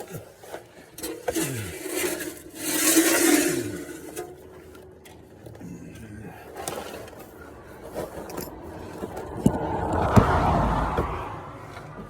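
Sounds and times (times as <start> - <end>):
oil pan scraping: 0.0 - 5.2.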